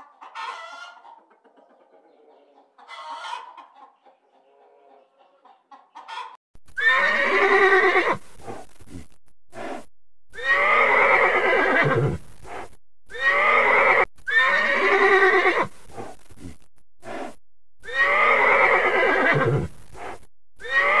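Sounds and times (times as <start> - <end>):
horses neighing: 6.8 - 8.7, 10.4 - 16.1, 17.8 - 19.7, 20.6 - 21.0.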